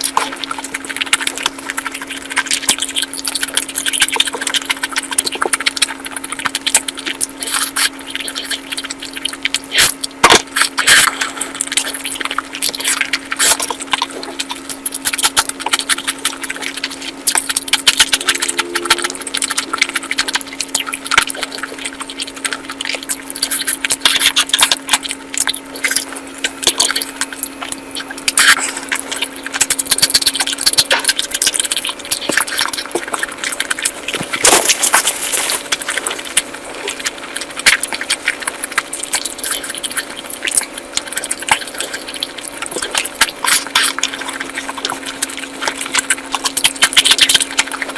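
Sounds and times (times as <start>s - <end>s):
crackling crunches: 0.0s - 47.9s
steady low hum: 0.0s - 47.9s
wet chewing and smacking: 0.0s - 47.9s.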